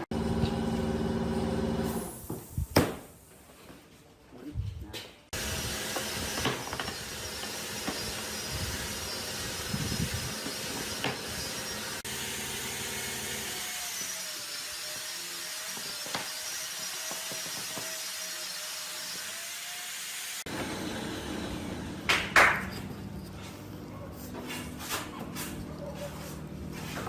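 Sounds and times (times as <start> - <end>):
power tool working wood: 5.4 - 22.2.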